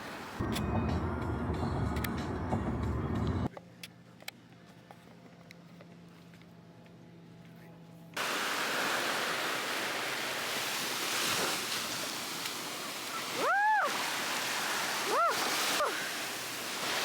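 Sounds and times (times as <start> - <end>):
ocean surf: 0.0 - 0.4, 8.2 - 17.0
wind: 0.0 - 17.0.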